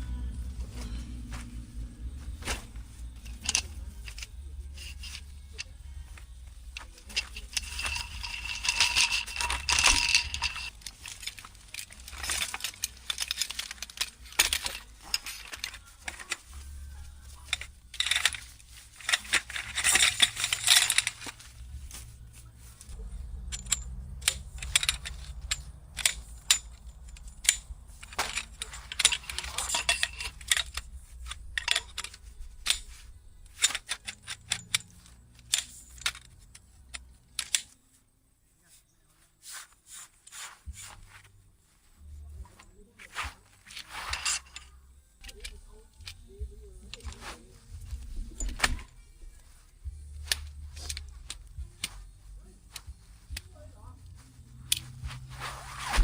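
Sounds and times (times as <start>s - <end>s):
low steady hum: 0.0s - 39.4s, 40.6s - 56.0s
rustling: 0.0s - 56.0s
small metal objects clinking: 2.9s - 22.1s, 22.8s - 37.8s, 43.6s - 55.1s
metallic ring: 7.1s - 22.1s.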